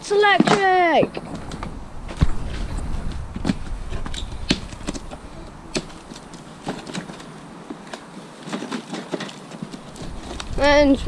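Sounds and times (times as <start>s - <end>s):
bike parts clicking and knocking: 3.1s - 10.6s.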